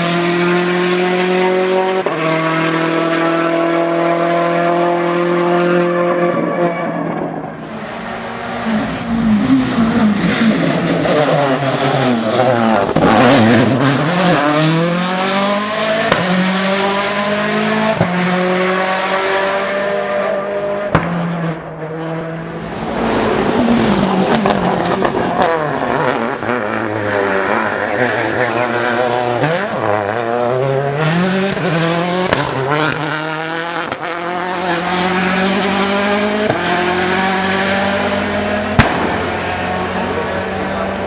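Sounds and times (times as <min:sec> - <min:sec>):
rally car engine revving: 0:00.0 - 0:41.0
exhaust pops: 0:09.8 - 0:14.7, 0:20.9 - 0:33.2, 0:38.0 - 0:41.0.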